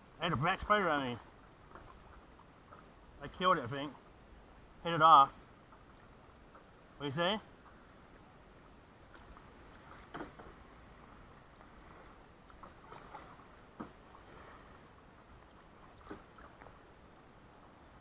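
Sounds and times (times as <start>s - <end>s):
low wash of water: 0.0s - 18.0s
paddle splashes in water: 9.1s - 16.9s.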